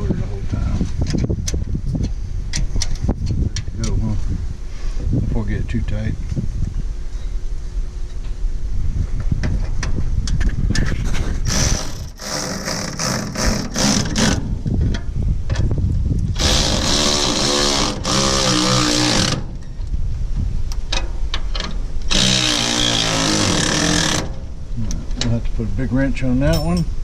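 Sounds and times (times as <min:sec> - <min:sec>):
power wrench bursts: 0:11.5 - 0:14.5, 0:16.4 - 0:19.6, 0:22.1 - 0:24.4.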